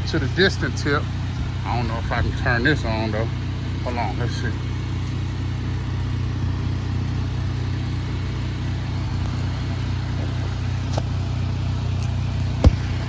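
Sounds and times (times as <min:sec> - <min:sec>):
pressure washer engine running: 0:00.0 - 0:13.0.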